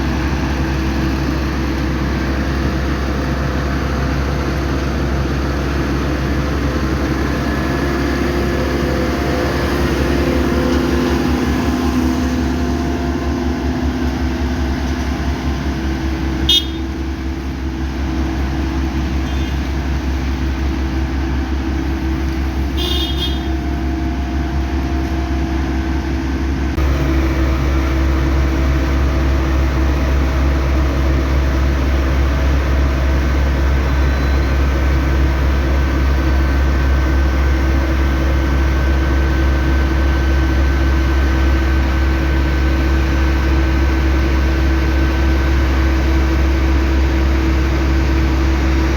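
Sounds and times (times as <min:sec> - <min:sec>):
vehicle engine and road noise: 0:00.0 - 0:48.9
car horn toots: 0:16.4 - 0:17.0, 0:22.7 - 0:23.6.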